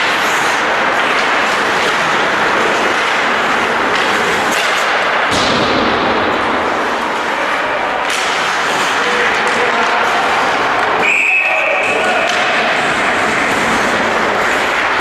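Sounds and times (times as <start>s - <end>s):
loud rushing noise: 0.0s - 15.0s
sharp knocks and slaps: 2.9s - 6.5s.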